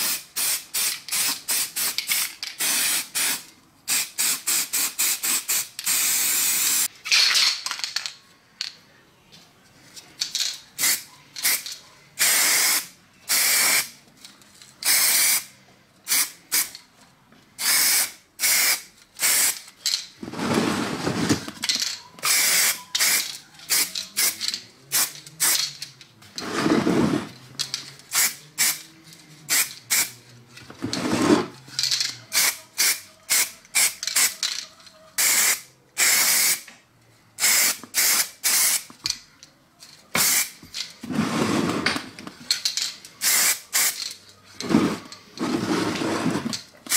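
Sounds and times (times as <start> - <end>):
spray paint cans hissing: 0.0 - 6.9, 10.2 - 14.0, 14.8 - 15.5, 16.1 - 16.8, 17.6 - 20.0, 21.6 - 25.8, 27.6 - 28.9, 29.5 - 30.2, 31.8 - 34.6, 35.2 - 36.7, 37.4 - 38.9, 40.2 - 40.6, 42.7 - 44.2.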